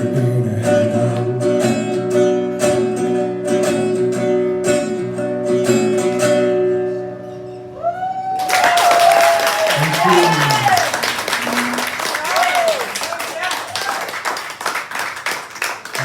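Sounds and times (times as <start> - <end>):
acoustic guitar strumming: 0.0 - 7.8
audience whooping: 7.8 - 14.4
audience applause: 8.4 - 16.0.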